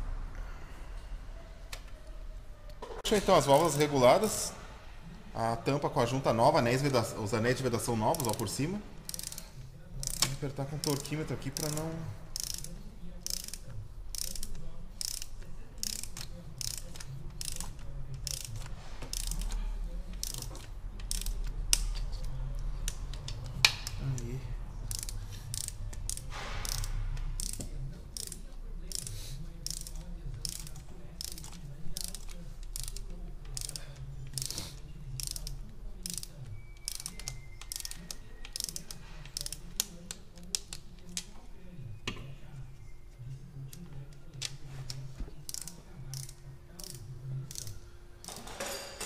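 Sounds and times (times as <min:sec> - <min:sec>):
torque wrench ratchet clicking: 0:08.1 - 0:24.0, 0:24.9 - 0:39.9, 0:45.5 - 0:48.4.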